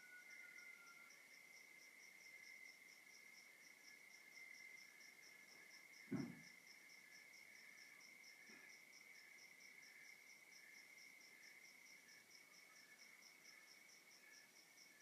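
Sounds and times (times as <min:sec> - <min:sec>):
pulsed cricket chirping: 0:00.0 - 0:15.0
low thump: 0:06.1 - 0:06.5.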